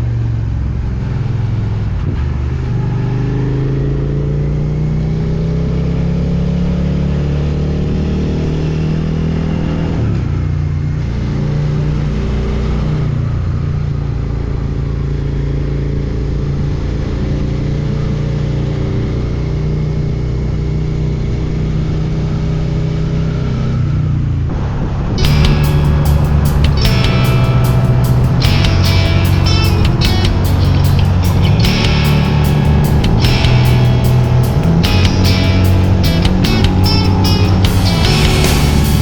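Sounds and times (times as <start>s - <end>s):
motorcycle engine running: 25.2s - 39.0s.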